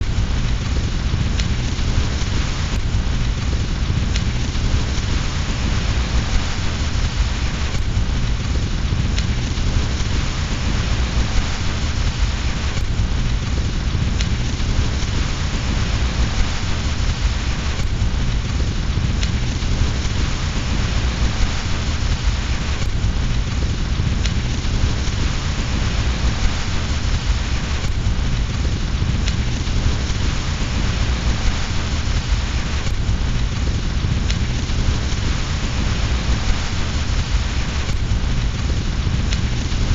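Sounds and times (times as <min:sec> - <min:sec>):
fireplace fire crackling: 0:00.0 - 0:39.9
low rumble: 0:00.0 - 0:39.9
steady rain: 0:00.0 - 0:39.9
faint sharp clicks: 0:09.1 - 0:09.5.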